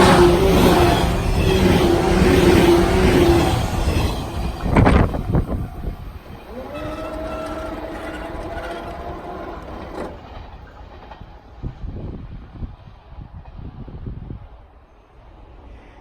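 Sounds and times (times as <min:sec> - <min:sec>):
wheels clacking over rail joints: 0:00.0 - 0:11.4
train rumbling past: 0:00.0 - 0:11.8.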